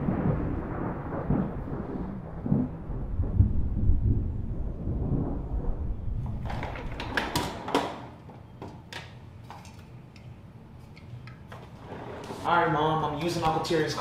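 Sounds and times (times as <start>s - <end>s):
low rumble: 0.0s - 7.1s
cans knocking and clinking: 6.4s - 10.3s.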